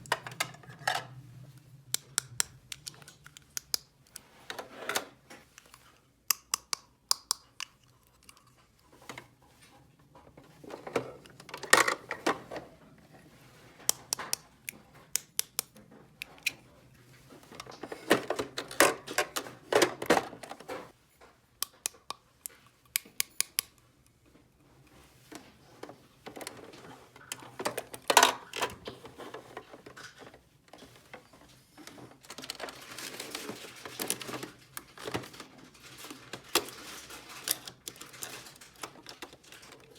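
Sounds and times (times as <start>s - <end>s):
plastic toy pieces clicking: 1.9s - 4.2s, 5.6s - 8.5s.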